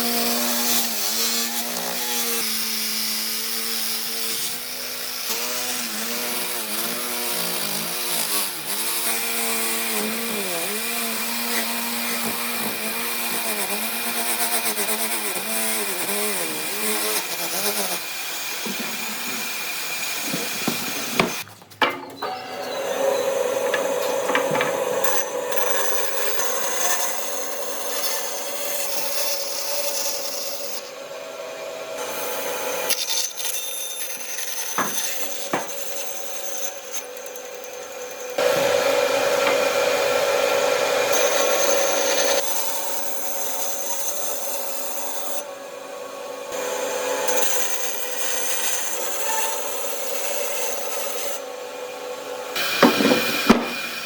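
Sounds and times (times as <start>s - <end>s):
tools rasping wood: 0.2s - 21.5s, 23.4s - 29.5s, 32.9s - 40.1s, 52.6s - 54.0s
sharp knocks: 18.6s - 22.3s, 23.6s - 25.2s, 34.8s - 35.8s, 52.6s - 54.0s.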